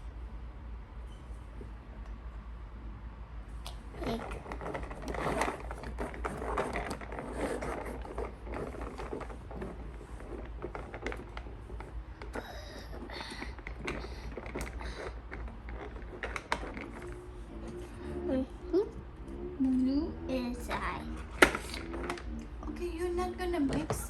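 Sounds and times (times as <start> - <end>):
plastic toy pieces clicking and rustling: 4.0 - 17.2.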